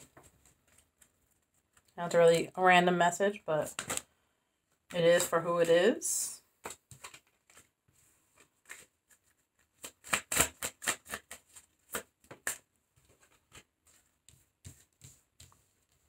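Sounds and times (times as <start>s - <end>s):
cards being shuffled: 6.6s - 7.7s, 8.3s - 16.0s.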